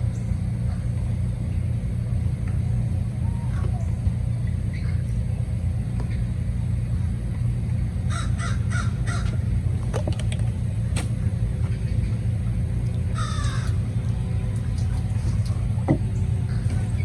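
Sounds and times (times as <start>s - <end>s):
low rumble: 0.0s - 17.0s
harsh caw-like bird calls: 8.1s - 9.4s, 13.1s - 13.8s.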